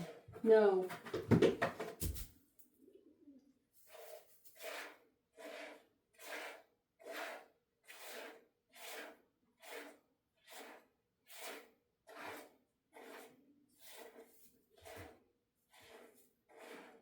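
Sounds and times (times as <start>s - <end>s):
milk squirting into container: 3.8s - 17.0s.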